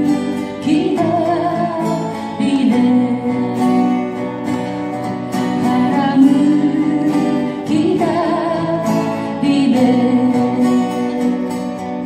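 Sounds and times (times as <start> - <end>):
person singing: 0.0 - 4.5, 5.4 - 12.0
strummed acoustic guitar: 0.0 - 12.0.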